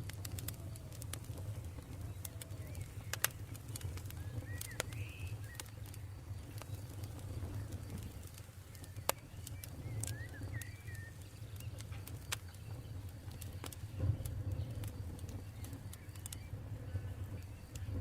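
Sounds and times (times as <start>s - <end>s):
campfire crackling and popping: 0.0s - 18.0s
low steady rumble: 0.0s - 18.0s
bird chirping: 1.7s - 17.8s.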